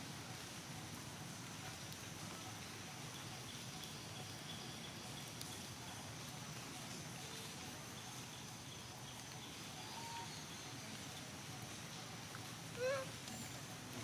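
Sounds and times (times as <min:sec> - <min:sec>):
faint bird chirps: 0:07.2 - 0:11.0, 0:12.7 - 0:13.8.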